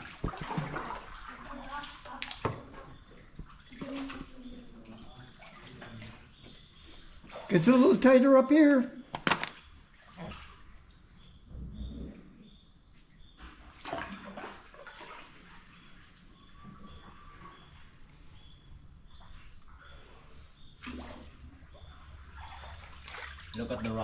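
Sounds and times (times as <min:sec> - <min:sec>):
paddle splashing in water: 0:00.0 - 0:06.4, 0:13.4 - 0:16.1, 0:20.8 - 0:21.4, 0:22.3 - 0:24.0
high-pitched insect buzz: 0:01.3 - 0:24.0.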